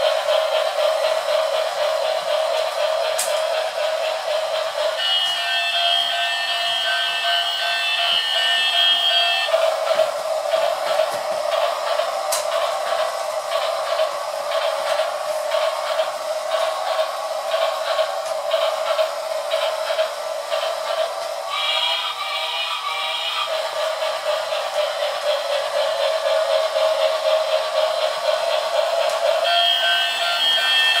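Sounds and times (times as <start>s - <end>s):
miniature train whirring: 0.0s - 31.0s
train whistle tone: 4.9s - 9.7s, 21.5s - 23.8s, 29.4s - 31.0s.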